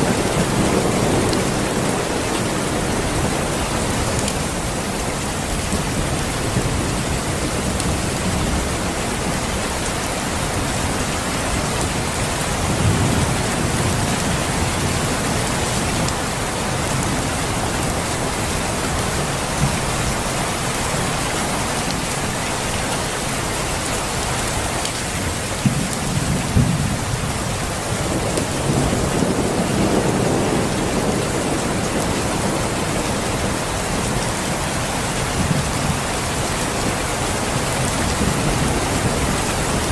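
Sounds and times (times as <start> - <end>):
steady rain: 0.0 - 39.9
thunder rolling: 25.6 - 34.2.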